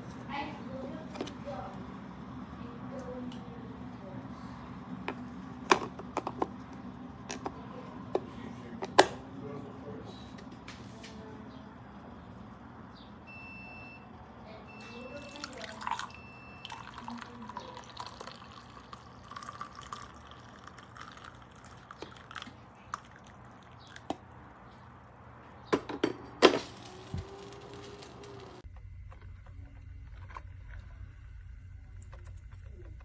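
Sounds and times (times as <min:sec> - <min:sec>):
coffee maker dripping: 0:14.7 - 0:24.3.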